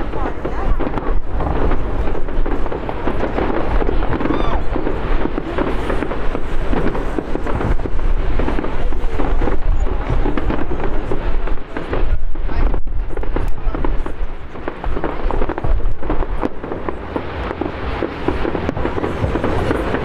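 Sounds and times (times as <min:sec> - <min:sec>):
distant fireworks crackling: 0:00.0 - 0:20.0
low rumble: 0:14.9 - 0:20.0.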